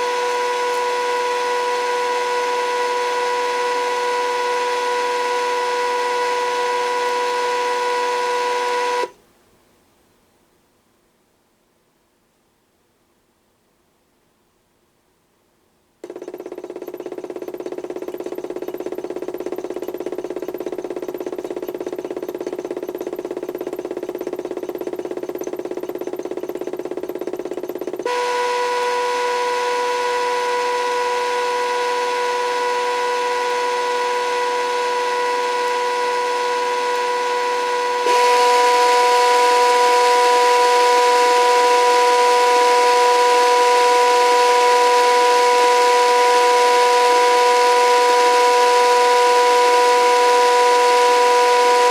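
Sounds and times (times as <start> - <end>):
toy motor whining: 16.0 - 51.9.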